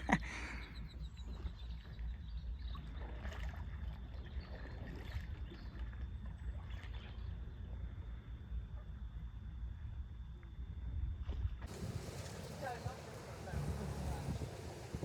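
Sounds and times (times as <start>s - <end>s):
water lapping against kayak hull: 2.8s - 7.1s, 11.7s - 15.0s
small splashes: 3.0s - 7.1s, 11.7s - 15.0s
steady low rumble: 11.7s - 15.0s.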